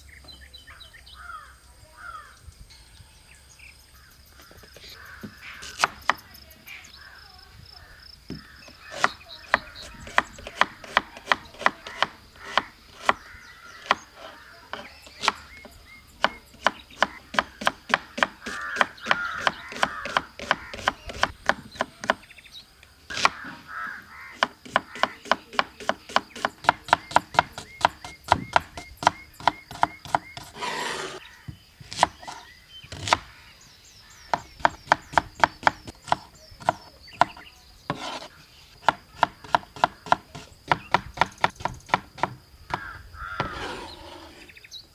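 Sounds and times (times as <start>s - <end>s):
crow cawing: 1.2s - 2.4s, 4.4s - 5.7s, 7.0s - 9.1s, 11.8s - 14.7s, 18.1s - 21.0s, 23.2s - 25.5s, 42.7s - 43.6s
knife chopping on wooden board: 5.2s - 6.2s, 8.3s - 14.0s, 14.7s - 22.3s, 23.1s - 23.5s, 24.4s - 33.3s, 34.3s - 43.8s.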